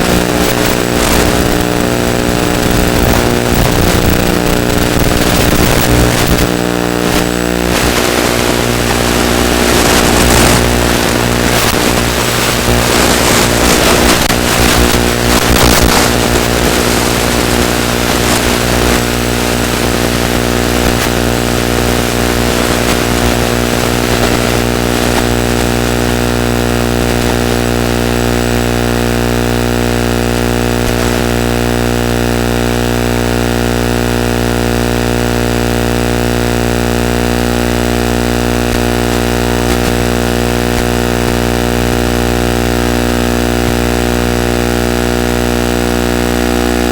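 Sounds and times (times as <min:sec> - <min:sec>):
electric motor and propeller droning: 0:00.0 - 0:25.4
gusty wind noise: 0:00.0 - 0:25.4.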